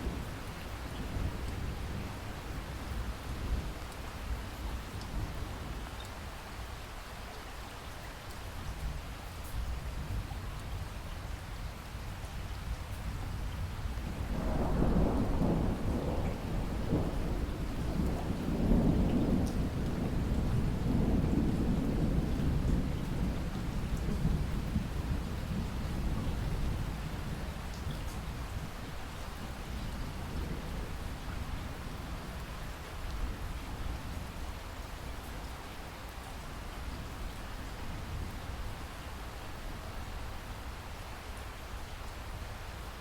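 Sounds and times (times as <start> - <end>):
steady rain: 0.0 - 43.0
thunder rumbling: 14.2 - 27.4.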